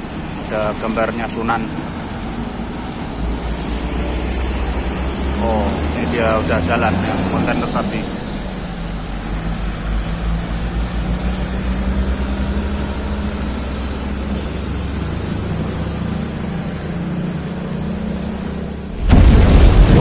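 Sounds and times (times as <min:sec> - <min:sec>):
truck diesel engine throbbing: 0:00.0 - 0:20.0
sudden loud burst of noise: 0:03.2 - 0:08.4, 0:19.0 - 0:20.0.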